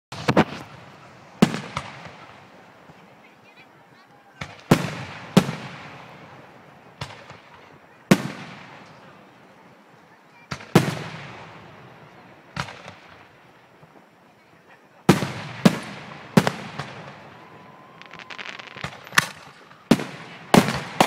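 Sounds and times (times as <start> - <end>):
fireworks booming: 0.1 - 3.1, 4.4 - 9.4, 10.4 - 14.1, 15.0 - 21.0.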